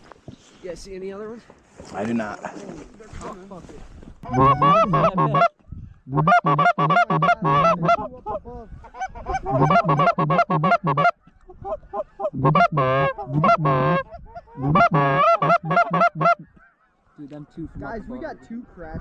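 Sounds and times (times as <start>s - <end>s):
goose calls honking: 4.2s - 5.5s, 6.1s - 8.4s, 9.0s - 16.8s.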